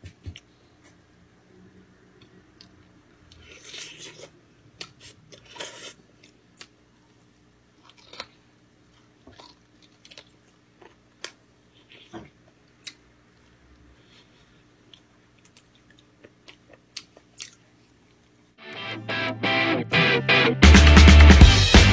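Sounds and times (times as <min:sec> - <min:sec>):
chewing and mouth noises: 0:07.8 - 0:18.4.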